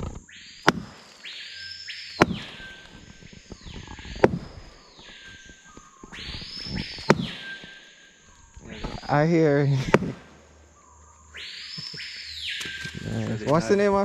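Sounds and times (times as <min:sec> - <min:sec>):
insects buzzing: 0:00.0 - 0:14.0
hollow knocks on tree trunk: 0:00.6 - 0:01.1, 0:02.2 - 0:04.6, 0:07.0 - 0:07.4, 0:09.8 - 0:10.2.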